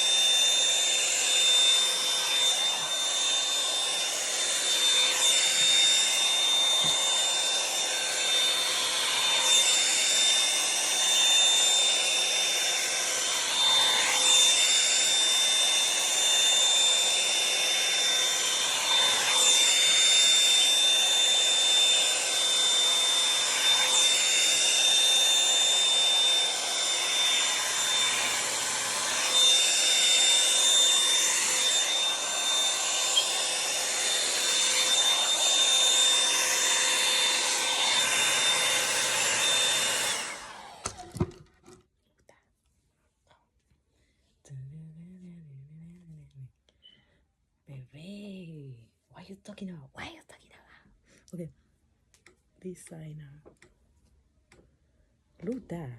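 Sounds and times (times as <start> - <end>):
hot-air dryer brush whining: 0.0 - 41.8.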